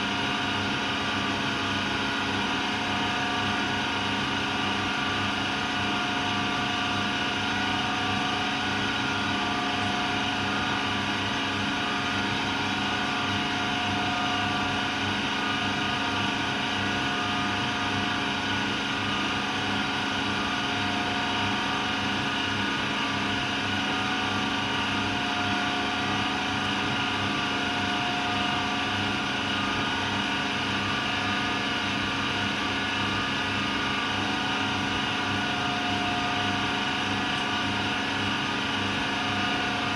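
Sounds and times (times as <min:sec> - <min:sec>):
washing machine humming and whining: 0:00.0 - 0:39.9.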